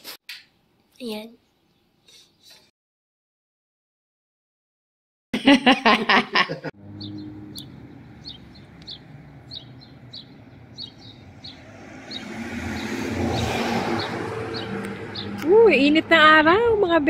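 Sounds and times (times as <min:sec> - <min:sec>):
car passing: 0:06.8 - 0:17.0
small bird chirping: 0:06.9 - 0:15.5.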